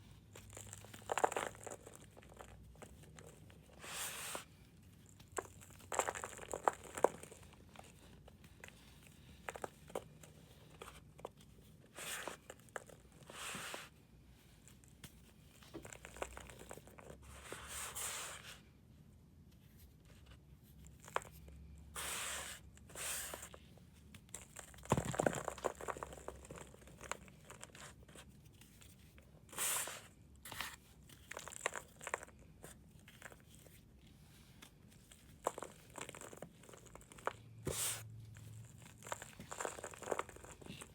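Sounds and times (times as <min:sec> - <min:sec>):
powder blocks crunching: 0:00.4 - 0:04.3, 0:05.2 - 0:08.0, 0:24.3 - 0:28.0, 0:29.5 - 0:32.4, 0:35.3 - 0:40.9.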